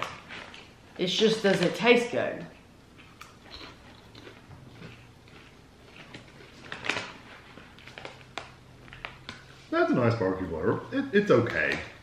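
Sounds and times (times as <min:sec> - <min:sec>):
popcorn being chewed: 0:00.0 - 0:01.0, 0:02.5 - 0:09.7.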